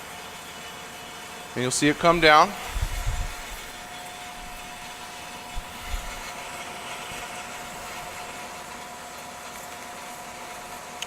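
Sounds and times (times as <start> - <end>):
bandsaw whining: 1.8 - 8.3
soft low thumps: 2.0 - 6.3.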